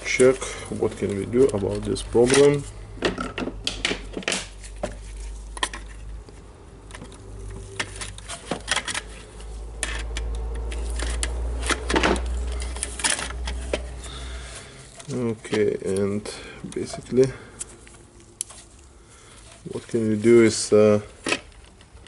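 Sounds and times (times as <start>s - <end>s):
clicks and clinks of small parts: 0.2s - 14.2s.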